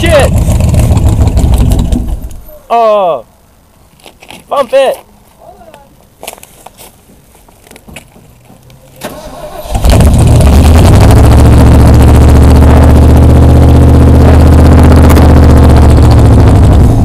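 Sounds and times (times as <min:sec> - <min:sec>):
car engine running steadily: 0:00.0 - 0:02.6, 0:09.6 - 0:17.0
car engine cranking: 0:00.0 - 0:02.7, 0:08.2 - 0:17.0.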